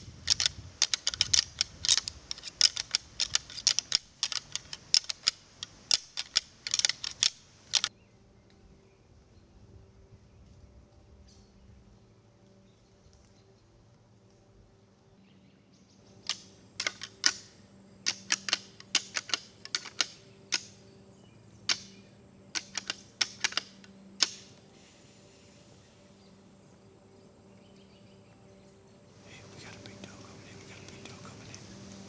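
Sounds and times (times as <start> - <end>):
sharp clicks: 0.0 - 7.9, 16.2 - 20.8, 21.6 - 24.6, 29.3 - 32.0
faint low hum: 0.0 - 32.0.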